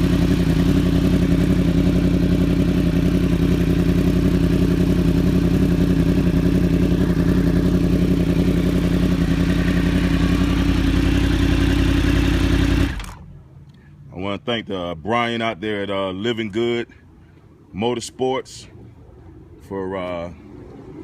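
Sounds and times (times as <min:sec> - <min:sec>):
motorcycle engine idling: 0:00.0 - 0:13.6.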